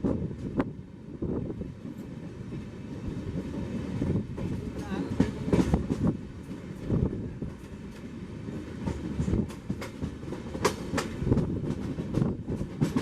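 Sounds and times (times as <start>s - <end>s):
train coach rumbling on rails: 0.0s - 13.0s
wheels clacking over rail joints: 3.4s - 13.0s.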